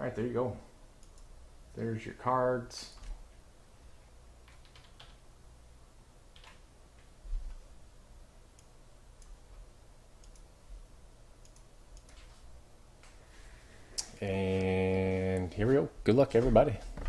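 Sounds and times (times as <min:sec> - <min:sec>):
steady low hum: 0:00.0 - 0:17.0
light clicks and ticks: 0:01.0 - 0:01.3, 0:10.2 - 0:10.5, 0:11.4 - 0:12.4.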